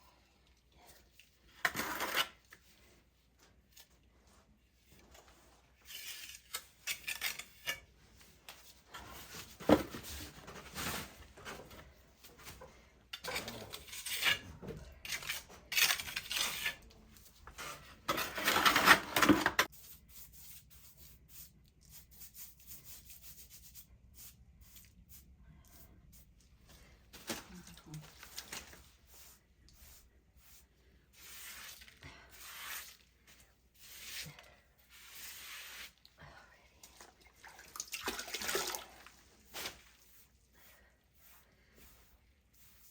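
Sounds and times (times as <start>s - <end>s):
trowel scraping mortar: 1.6s - 2.6s, 5.8s - 7.9s, 13.2s - 21.2s, 29.2s - 33.1s, 33.8s - 36.0s.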